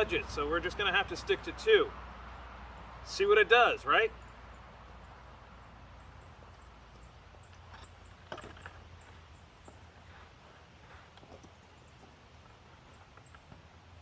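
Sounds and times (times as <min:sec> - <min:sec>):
small bird chirping: 0:12.9 - 0:13.5.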